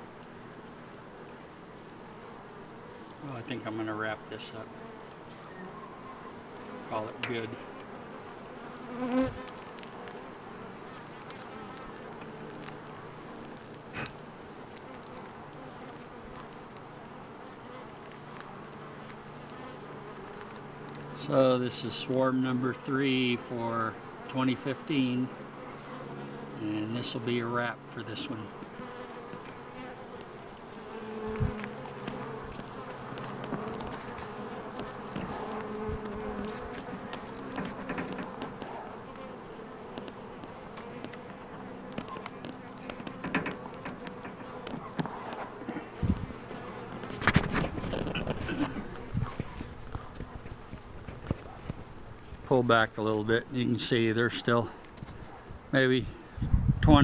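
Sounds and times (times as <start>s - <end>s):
bee swarm buzzing: 0.0s - 55.7s.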